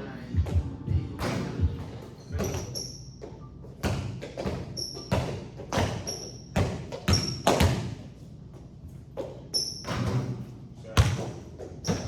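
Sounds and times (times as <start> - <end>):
sneakers squeaking: 0.3 - 12.0
basketball bouncing on hardwood: 3.8 - 7.9, 11.0 - 12.0.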